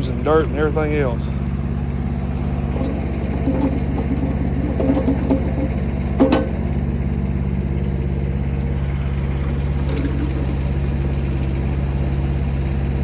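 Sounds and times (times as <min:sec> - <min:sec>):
excavator engine running: 0:00.0 - 0:13.0
metallic clanks: 0:02.7 - 0:07.0.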